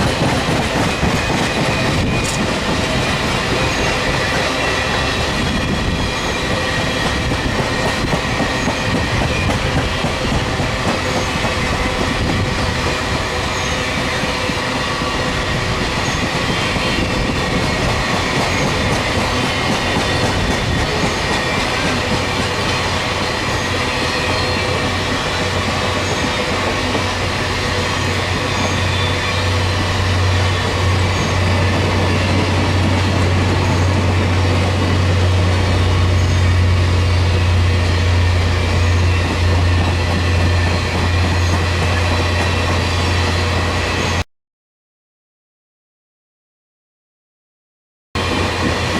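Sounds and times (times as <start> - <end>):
train wheels rolling on rails: 0.0 - 44.2, 48.2 - 48.9.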